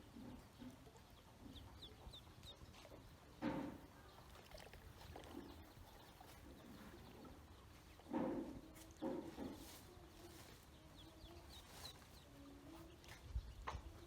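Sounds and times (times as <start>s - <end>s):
ducklings peeping: 0.0s - 4.4s, 5.0s - 14.0s.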